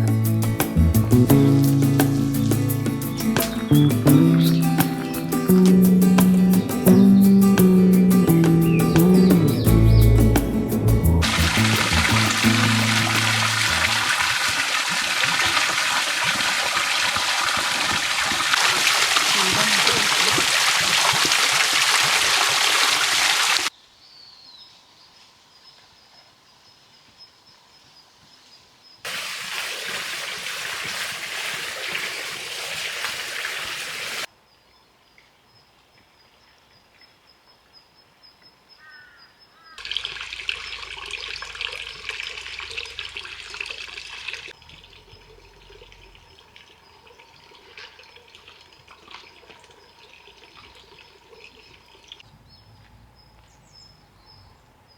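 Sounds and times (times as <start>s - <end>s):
water running and splashing: 0.0s - 7.0s, 10.2s - 23.7s, 29.1s - 34.3s, 39.8s - 52.3s.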